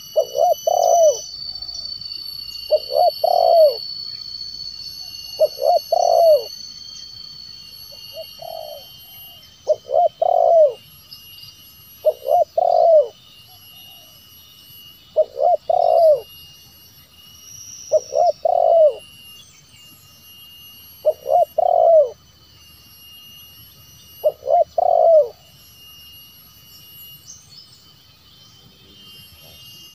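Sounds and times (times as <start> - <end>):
dove cooing: 0.0 - 1.7, 2.7 - 3.8, 5.4 - 6.5, 8.1 - 10.8, 12.0 - 13.2, 15.2 - 16.3, 17.9 - 19.0, 21.0 - 22.2, 24.2 - 25.4
high-pitched drone: 0.0 - 29.9.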